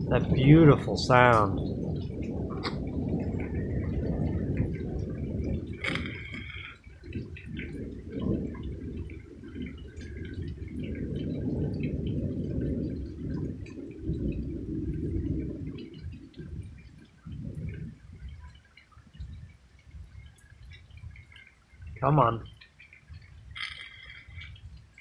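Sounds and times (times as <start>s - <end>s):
rolling thunder: 0.0s - 18.5s.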